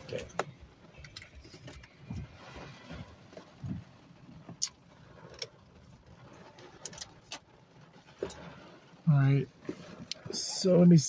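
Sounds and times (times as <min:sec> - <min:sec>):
soft thumps in car cabin: 0:02.0 - 0:03.9.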